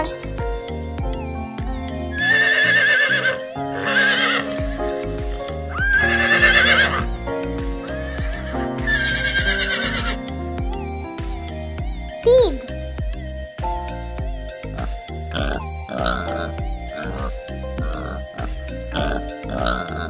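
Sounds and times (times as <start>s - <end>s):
background music: 0.0s - 20.0s
horse whinnying: 2.2s - 4.6s, 5.7s - 7.1s, 8.0s - 10.2s.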